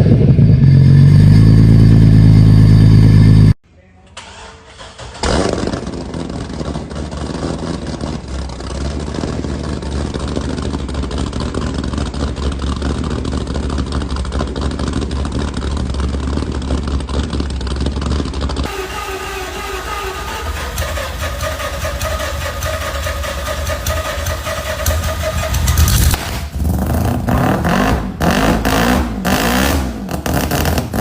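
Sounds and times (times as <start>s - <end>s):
engine cranking: 4.2s - 26.8s
engine idling loudly: 5.8s - 26.2s.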